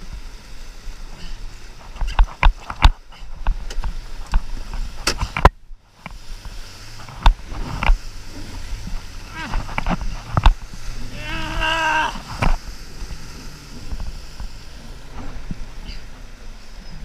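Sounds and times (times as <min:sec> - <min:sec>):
wind and water noise: 0:00.0 - 0:17.0.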